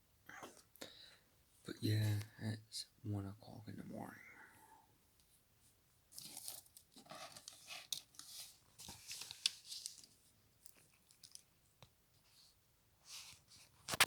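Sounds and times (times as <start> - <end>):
rustling crinkling handling noise: 6.1 - 11.6.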